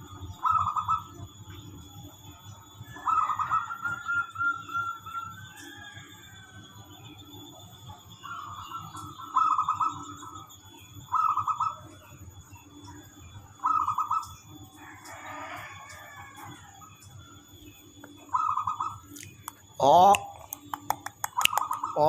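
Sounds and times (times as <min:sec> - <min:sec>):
dove cooing in trilled phrases: 0:00.0 - 0:22.0.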